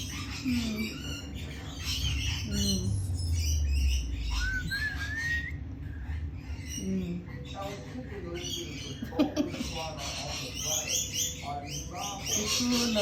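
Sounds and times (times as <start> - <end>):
parrots squawking: 0.0 - 13.0
rising whistled bird call: 3.0 - 6.1.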